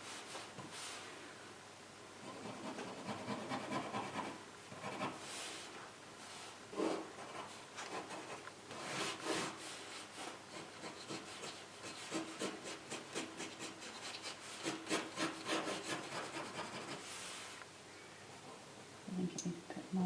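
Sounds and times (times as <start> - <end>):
pen scratching on paper: 10.5 - 17.1.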